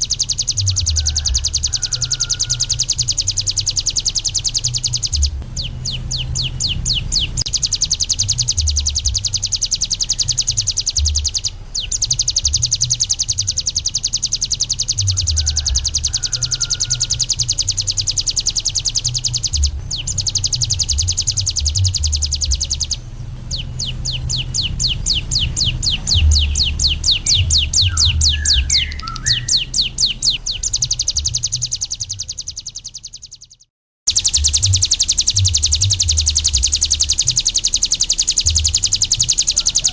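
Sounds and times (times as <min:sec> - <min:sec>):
bird singing high trill: 0:00.0 - 0:39.9
low rumble: 0:02.7 - 0:16.1, 0:16.9 - 0:32.3.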